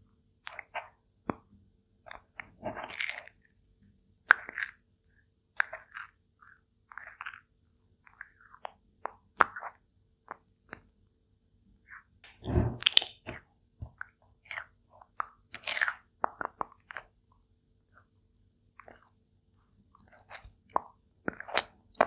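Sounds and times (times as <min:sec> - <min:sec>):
turtle crunching food: 0:02.0 - 0:10.4, 0:12.4 - 0:17.2, 0:17.8 - 0:22.0.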